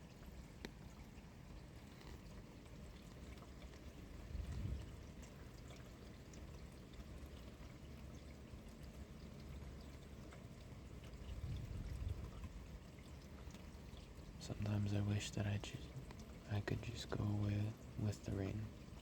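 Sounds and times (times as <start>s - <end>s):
steady rainfall: 12.2s - 19.0s.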